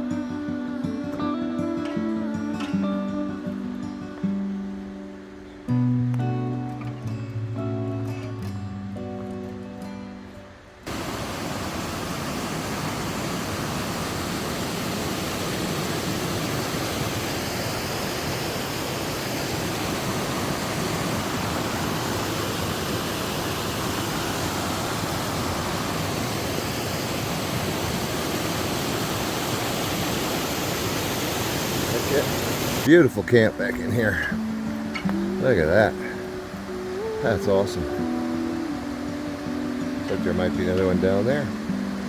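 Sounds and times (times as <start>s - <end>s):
river rushing over rocks: 10.8s - 42.0s.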